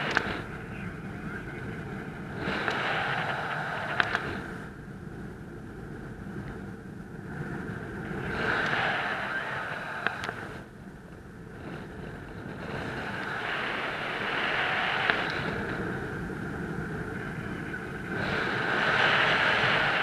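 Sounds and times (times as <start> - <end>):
sharp click: 0.0 - 0.3, 2.6 - 4.3
wind rushing over microphone: 0.0 - 20.0.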